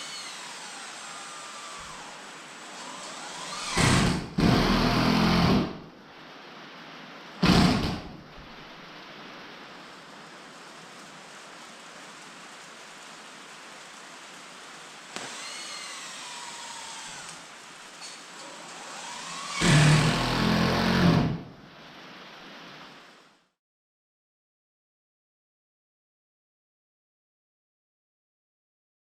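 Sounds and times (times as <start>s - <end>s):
power tool motor running: 0.0s - 5.6s, 15.2s - 17.4s, 18.4s - 21.2s
steady hiss: 0.0s - 23.6s.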